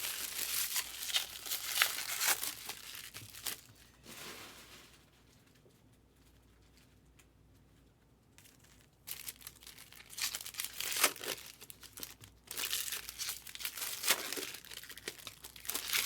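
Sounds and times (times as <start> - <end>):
card pack wrappers tearing: 0.0 - 3.7, 9.1 - 16.0.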